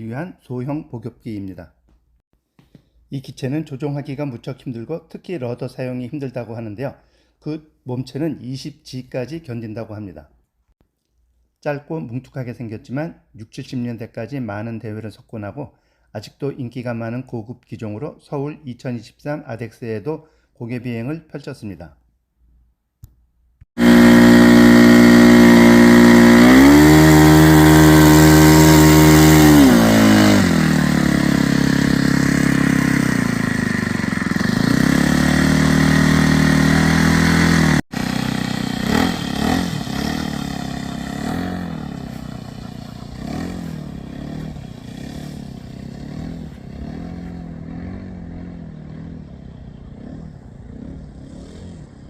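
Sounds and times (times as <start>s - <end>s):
model plane engine: 23.8s - 50.7s.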